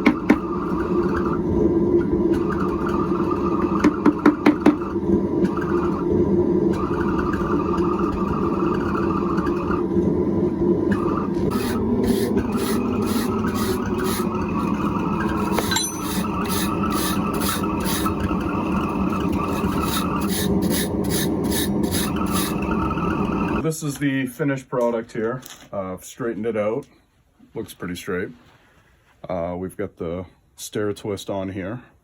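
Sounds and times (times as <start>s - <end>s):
steady roar: 4.9s - 15.6s.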